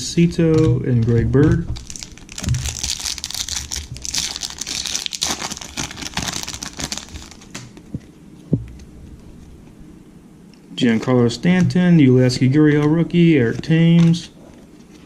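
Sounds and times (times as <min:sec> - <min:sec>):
plastic wrapper crinkling and tearing: 0:01.8 - 0:07.8.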